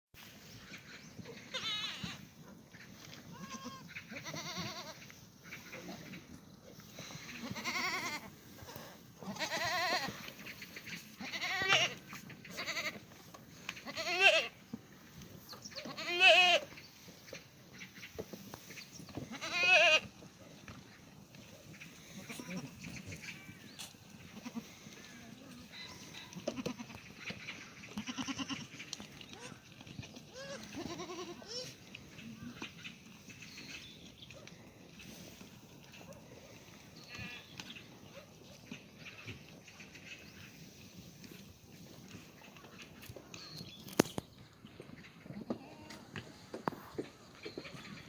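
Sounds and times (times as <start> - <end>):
goats bleating: 1.3 - 2.3, 3.2 - 5.1, 7.0 - 10.4, 11.2 - 13.1, 13.8 - 14.6, 15.8 - 16.7, 19.2 - 20.2, 22.0 - 23.6, 24.2 - 27.1, 27.9 - 29.7, 30.3 - 32.6.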